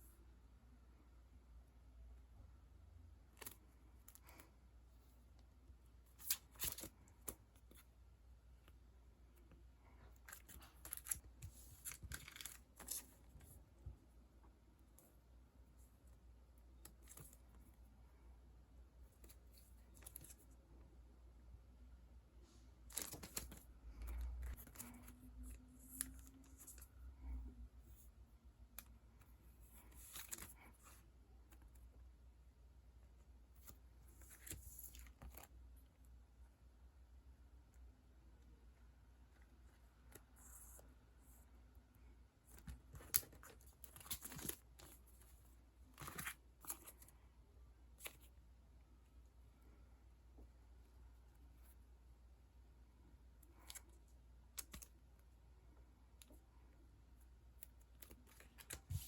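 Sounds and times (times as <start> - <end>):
sticker sheets rustling and crinkling: 9.8 - 14.0, 22.5 - 28.1, 28.7 - 31.8, 33.6 - 35.6, 42.4 - 47.2, 57.5 - 59.0.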